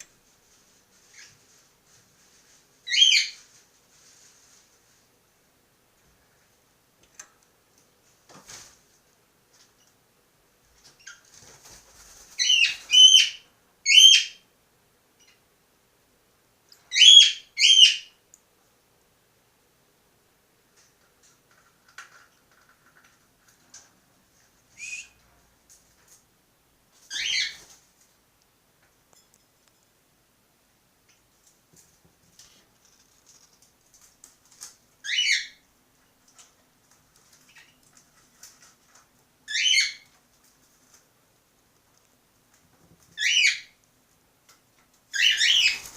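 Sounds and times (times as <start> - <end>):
cockatiel whistled calls: 16.9 - 18.1, 43.2 - 43.7
soft ticks and rustles: 20.6 - 26.4, 27.6 - 30.0, 31.0 - 35.0, 35.8 - 39.4, 40.0 - 43.2, 43.8 - 45.1.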